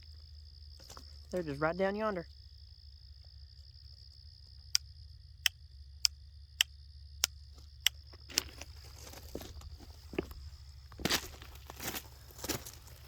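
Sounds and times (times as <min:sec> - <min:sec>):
crunching footsteps: 0:00.0 - 0:01.6, 0:07.4 - 0:13.0
insects buzzing: 0:00.0 - 0:13.0
sharp ticks: 0:04.5 - 0:08.2.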